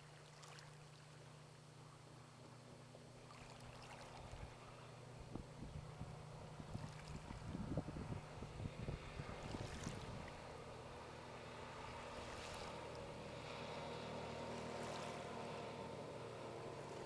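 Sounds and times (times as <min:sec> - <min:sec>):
motorboat engine running: 0:00.0 - 0:17.0
water noise: 0:00.0 - 0:17.0
wind buffeting microphone: 0:05.2 - 0:10.5.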